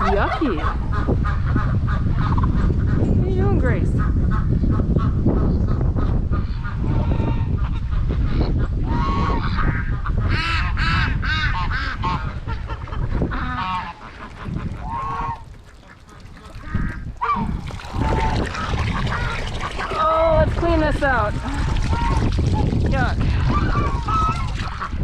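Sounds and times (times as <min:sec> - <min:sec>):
wind rumble on microphone: 0:00.0 - 0:25.0
geese honking: 0:08.5 - 0:20.4.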